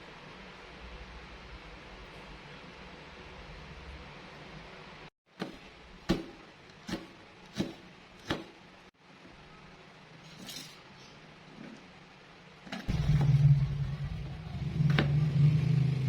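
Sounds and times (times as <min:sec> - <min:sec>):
knife chopping on cutting board: 0:05.4 - 0:08.6.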